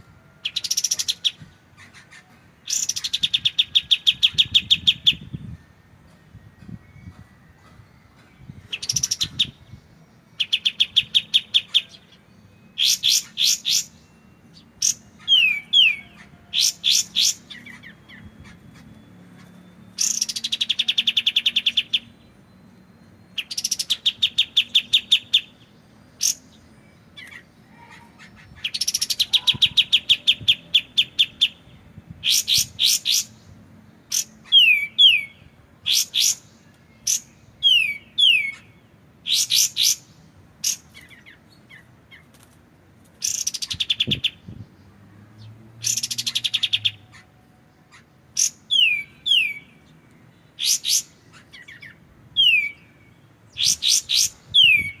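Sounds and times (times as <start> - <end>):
bird whistled notes: 19.4 - 22.2, 48.4 - 49.7, 53.6 - 55.0.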